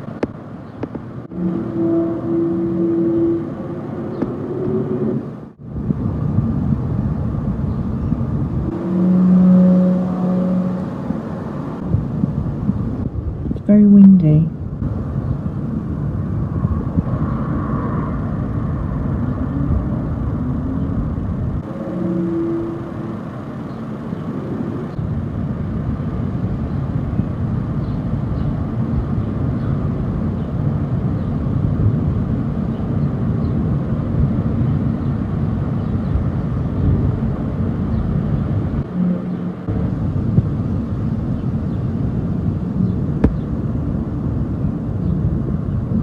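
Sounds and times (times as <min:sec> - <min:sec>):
wind buffeting microphone: 0:00.0 - 0:46.0
faint trumpet-like tones: 0:01.3 - 0:05.5, 0:08.6 - 0:11.9, 0:21.6 - 0:25.0, 0:38.8 - 0:40.0.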